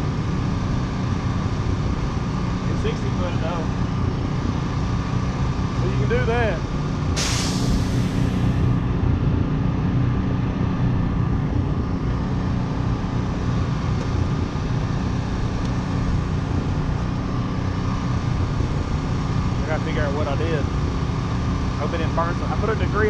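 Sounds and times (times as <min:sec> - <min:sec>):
engine rumbling at low revs: 0:00.0 - 0:23.0
brief hiss: 0:07.2 - 0:08.6.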